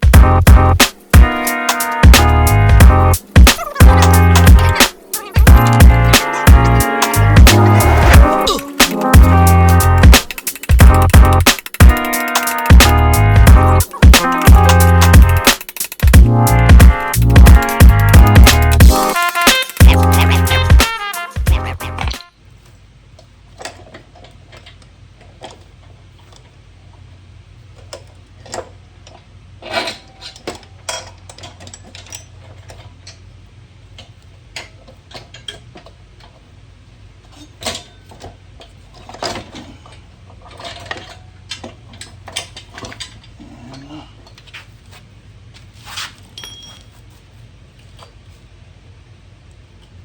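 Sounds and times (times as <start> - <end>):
steady low hum: 0.0 - 19.2
metallic clinks of tools: 46.4 - 47.0.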